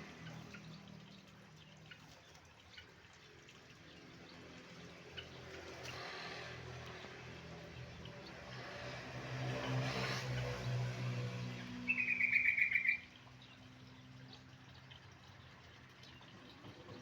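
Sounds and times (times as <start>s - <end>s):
rushing water-like noise: 0.0s - 17.0s
bird trilling: 11.9s - 13.0s.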